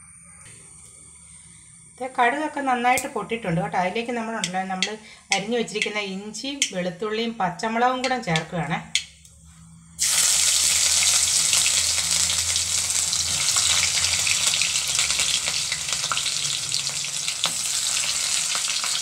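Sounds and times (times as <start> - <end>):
food sizzling in hot oil: 10.0 - 19.0.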